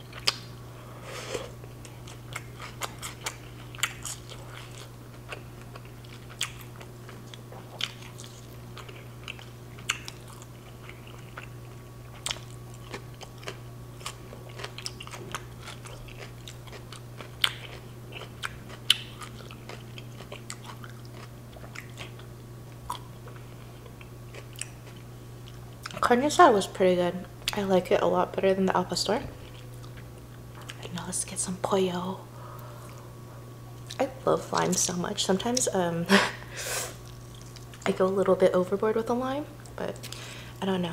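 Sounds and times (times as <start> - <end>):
person chewing food: 0.0 - 0.5, 1.2 - 26.0, 29.4 - 30.9, 37.0 - 37.9
steady low hum: 0.0 - 40.9.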